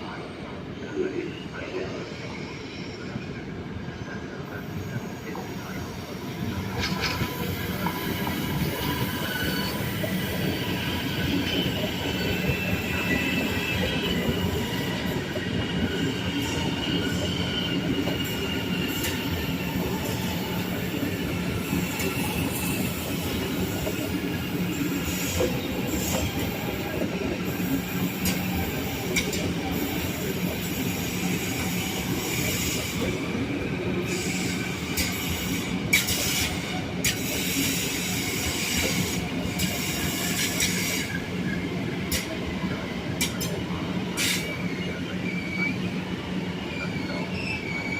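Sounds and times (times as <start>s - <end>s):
train rumbling: 0.0s - 47.9s
wheel squeal: 44.2s - 46.0s, 46.6s - 47.9s.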